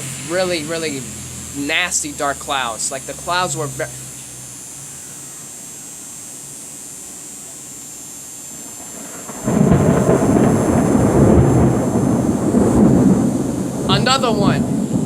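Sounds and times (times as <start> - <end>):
quiet hiss: 0.0 - 11.7
thunder rumbling: 8.6 - 15.0.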